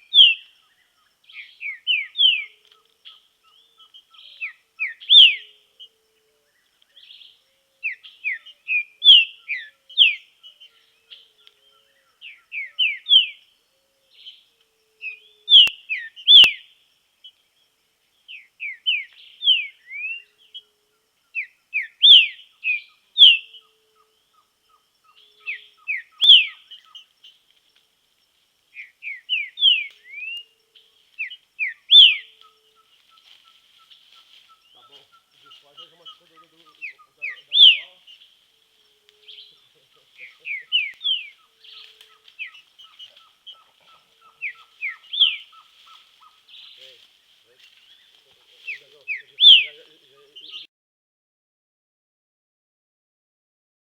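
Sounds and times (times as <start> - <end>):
bird singing swept whistles: 0.0 - 0.5, 1.3 - 5.6, 7.0 - 13.4, 15.0 - 16.7, 18.3 - 20.6, 21.4 - 23.7, 25.1 - 27.0, 28.8 - 30.6, 31.2 - 32.8, 35.6 - 38.2, 39.2 - 43.6, 44.4 - 45.7, 48.7 - 49.8.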